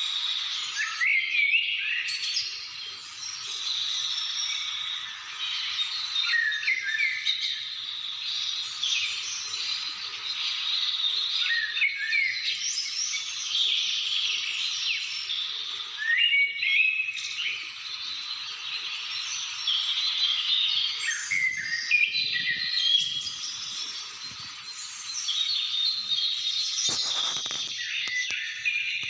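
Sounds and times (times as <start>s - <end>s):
wild birds chirping chorus: 0.0s - 29.0s
steady high hiss: 17.2s - 29.0s.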